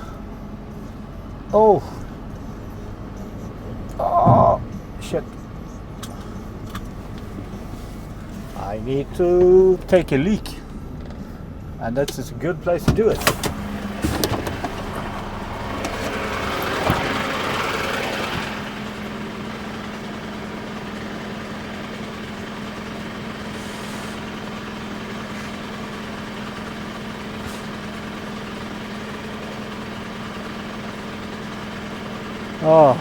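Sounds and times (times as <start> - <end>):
truck engine idling: 0.0 - 33.0
rushing hiss: 23.5 - 24.3.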